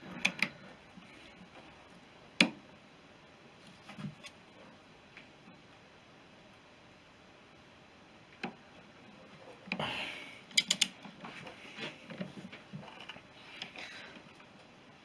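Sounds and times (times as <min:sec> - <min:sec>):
metal tools clicking: 0:10.5 - 0:10.9.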